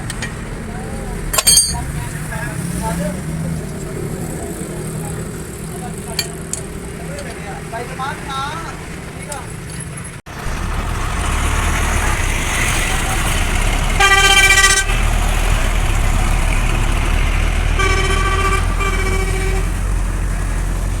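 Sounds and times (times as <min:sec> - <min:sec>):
engine rumbling: 0:00.0 - 0:21.0
vehicle horn blasts: 0:14.0 - 0:15.1, 0:17.8 - 0:19.8.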